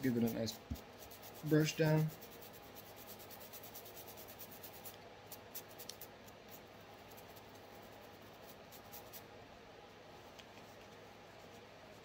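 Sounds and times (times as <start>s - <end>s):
small brush scrubbing metal: 0.0s - 6.1s.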